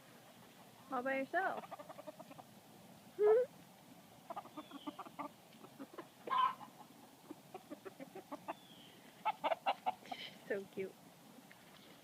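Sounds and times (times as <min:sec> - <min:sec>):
chickens clucking: 0:00.2 - 0:02.6, 0:04.2 - 0:10.2.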